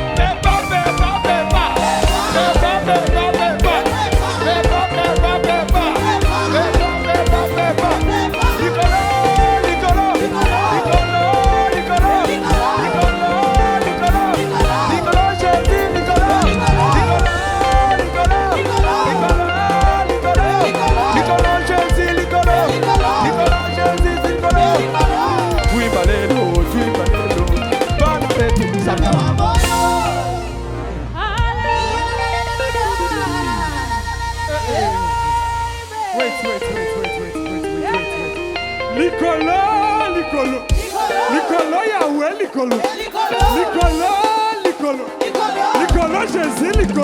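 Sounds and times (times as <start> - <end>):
rising sweep: 0.0 - 26.0, 28.8 - 41.8
steady drum beat: 0.0 - 36.6, 40.7 - 47.0
bass: 0.0 - 41.1
guitar melody: 0.0 - 47.0
live band playing praise music: 0.0 - 47.0.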